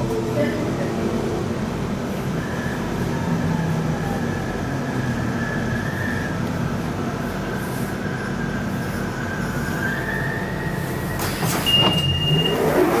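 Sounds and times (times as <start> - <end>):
train low hum: 0.0 - 13.0
short high beep: 11.6 - 12.8.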